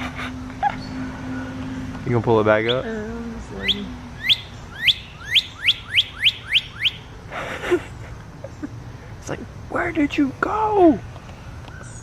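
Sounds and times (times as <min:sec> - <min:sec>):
bird whistling song: 0:03.6 - 0:07.1.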